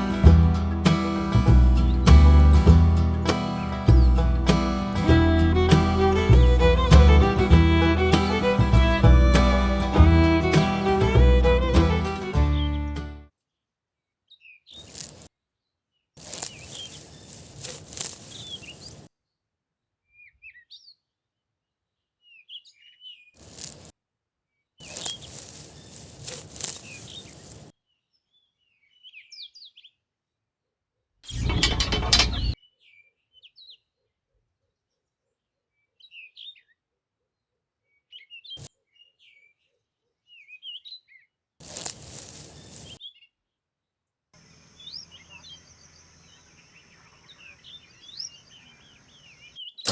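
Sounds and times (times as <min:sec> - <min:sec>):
small birds chirping: 0:14.4 - 0:15.3, 0:16.2 - 0:19.1, 0:22.4 - 0:23.9, 0:24.8 - 0:29.8, 0:41.6 - 0:43.1, 0:44.4 - 0:49.9.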